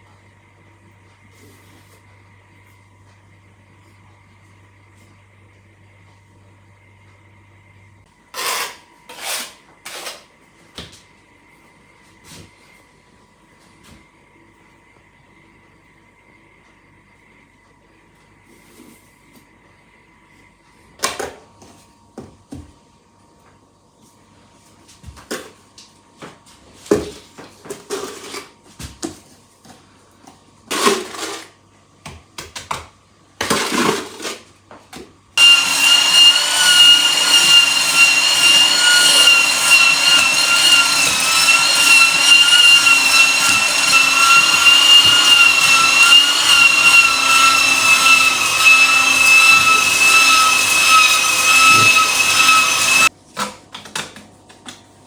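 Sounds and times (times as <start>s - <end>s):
small electric motor whining: 35.4s - 53.1s.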